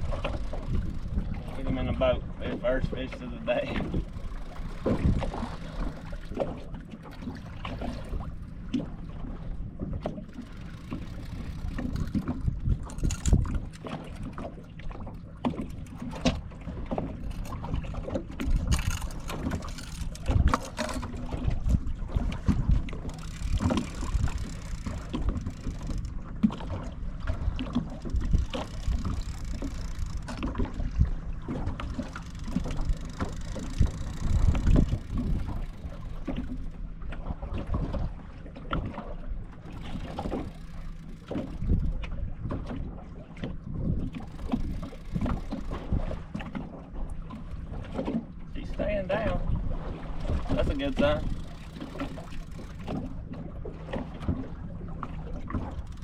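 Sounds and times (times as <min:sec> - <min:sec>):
low steady hum: 0:00.0 - 0:56.0
wind on microphone: 0:27.3 - 0:36.6.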